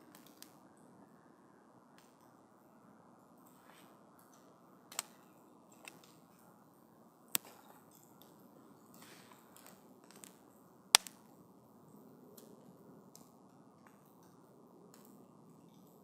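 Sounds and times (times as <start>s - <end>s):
burning wood crackling and popping: 0.0s - 0.6s, 4.2s - 6.6s, 7.3s - 11.4s.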